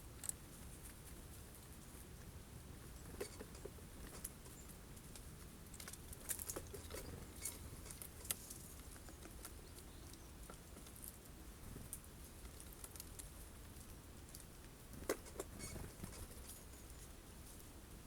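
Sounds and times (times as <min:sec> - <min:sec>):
birds pecking on a feeder: 0:00.0 - 0:18.0.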